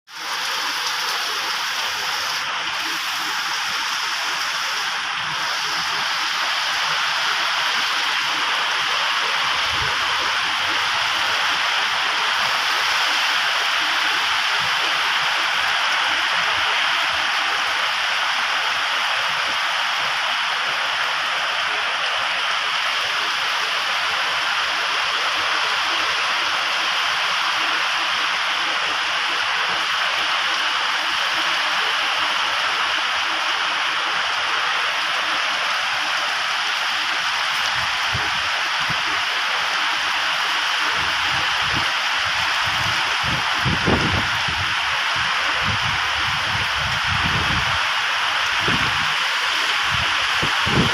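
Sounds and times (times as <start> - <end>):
heavy rain pouring: 0.1 - 50.9.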